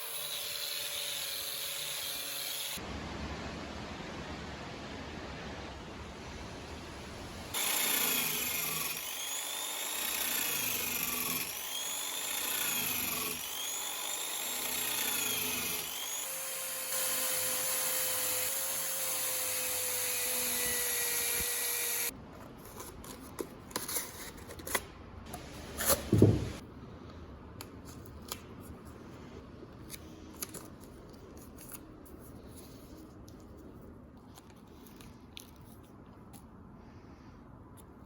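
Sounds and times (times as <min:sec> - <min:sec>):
power tool running: 0:07.6 - 0:22.1.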